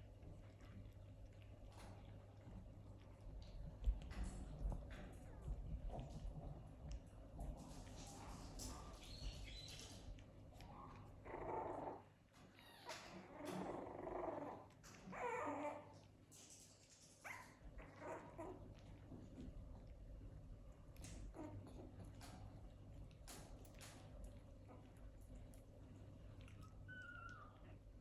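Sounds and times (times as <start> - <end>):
puppies growling and barking: 0.0 - 28.0.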